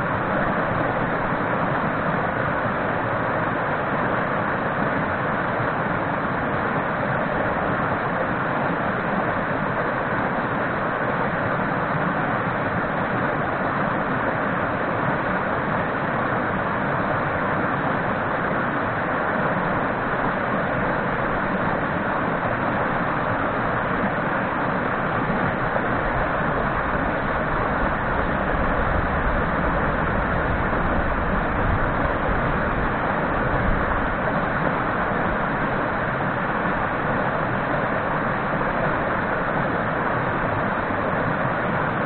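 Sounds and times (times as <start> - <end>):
stream rushing over rocks: 0.0 - 42.0
wind rumble on microphone: 16.2 - 42.0.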